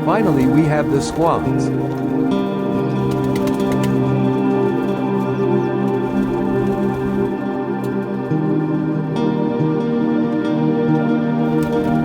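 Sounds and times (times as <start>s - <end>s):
ambient music with held chords: 0.0s - 12.0s.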